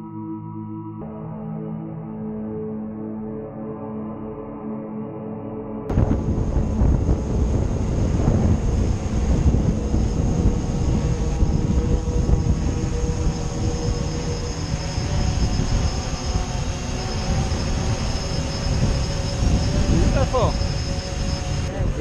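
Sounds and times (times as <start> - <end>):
drone propellers whining: 5.9 - 22.0
wind buffeting the microphone: 5.9 - 22.0.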